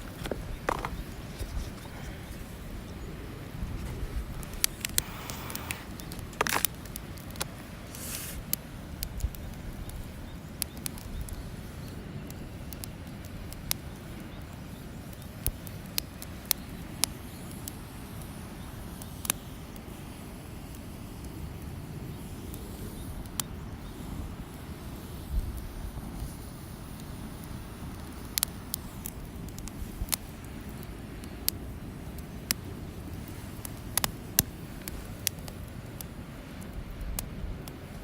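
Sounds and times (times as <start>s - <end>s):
campfire crackling and popping: 0.0s - 38.0s
short hissing bursts: 4.4s - 6.8s, 7.7s - 8.6s.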